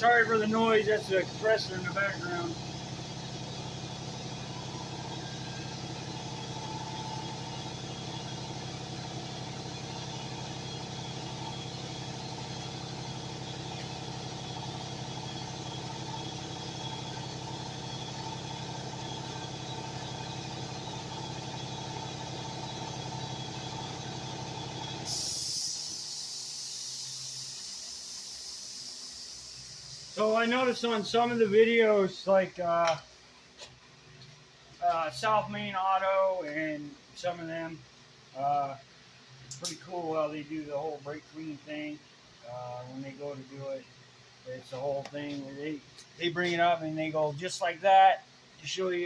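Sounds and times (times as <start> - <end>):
air compressor humming: 0.0 - 33.8
short air hiss: 25.0 - 30.7.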